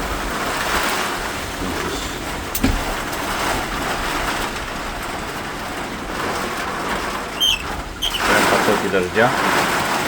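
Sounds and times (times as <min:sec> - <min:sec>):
gusting wind: 0:00.0 - 0:10.0
heavy rain: 0:00.0 - 0:10.0.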